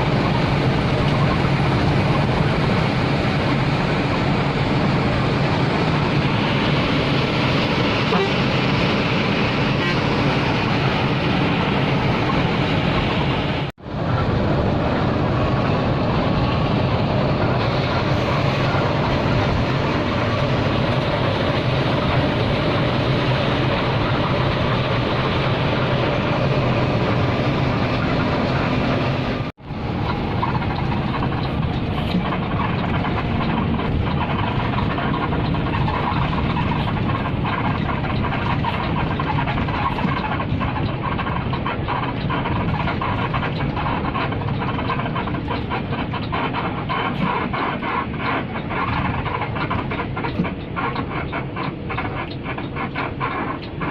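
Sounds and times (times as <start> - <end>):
bus engine and road noise: 0.0 - 53.9.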